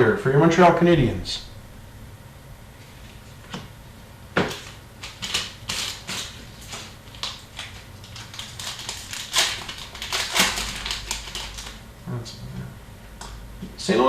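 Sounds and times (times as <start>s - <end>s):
trading cards clicking and rustling: 4.4s - 11.8s.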